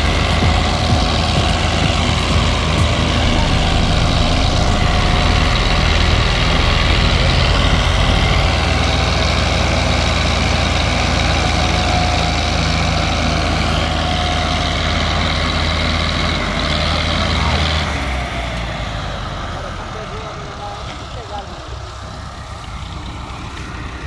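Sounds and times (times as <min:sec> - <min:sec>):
dense rumbling noise: 0:00.0 - 0:14.4
diesel tractor engine running: 0:00.0 - 0:24.0.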